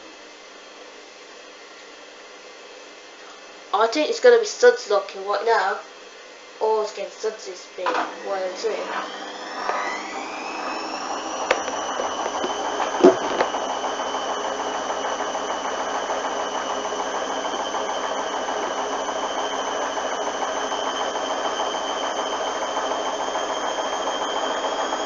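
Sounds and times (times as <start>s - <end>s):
washing machine spinning: 8.1s - 25.0s
washing machine knock: 11.5s - 13.6s.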